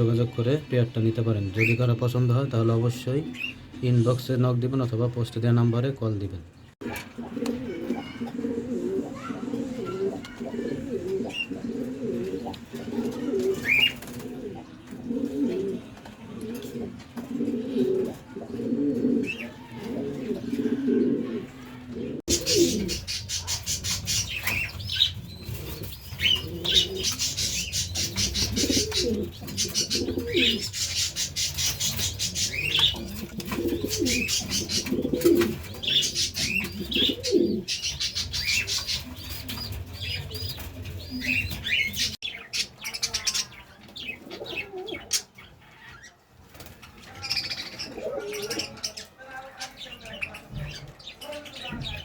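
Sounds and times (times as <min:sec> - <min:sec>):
small birds chirping: 0:00.0 - 0:52.0
pigeons cooing: 0:06.8 - 0:45.5, 0:46.5 - 0:49.2.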